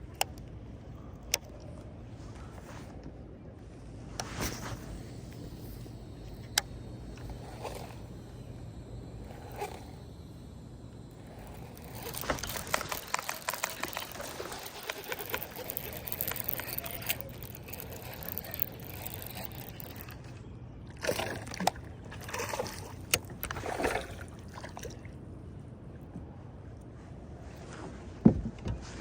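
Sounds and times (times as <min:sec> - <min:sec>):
crackling clicks: 0:04.2 - 0:20.4, 0:21.0 - 0:23.6
water splashing around kayak: 0:20.9 - 0:25.2.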